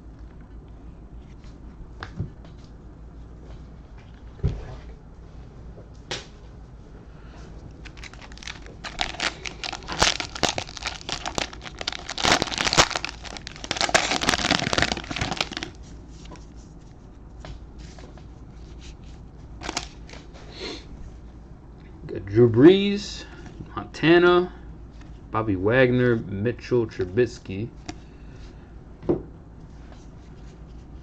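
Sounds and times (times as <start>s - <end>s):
plastic wrapper tearing and crinkling: 7.8s - 15.8s, 19.6s - 20.0s.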